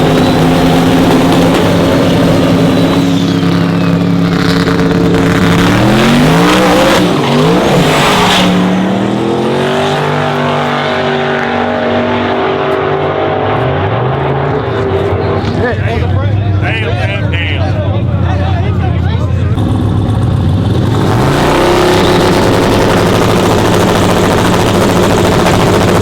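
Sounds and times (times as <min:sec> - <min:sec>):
racing truck engines revving: 0:00.0 - 0:26.0.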